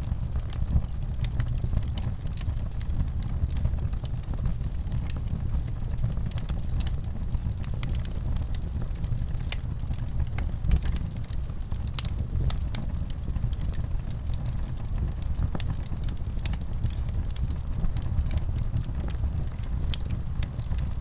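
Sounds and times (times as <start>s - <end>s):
fire crackling: 0.0s - 21.0s.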